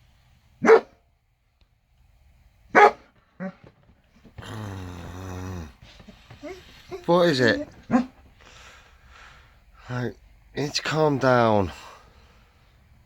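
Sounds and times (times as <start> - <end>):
dog barking: 0.6 - 1.0, 2.7 - 3.7, 6.4 - 8.2
dog growling low: 4.2 - 8.1.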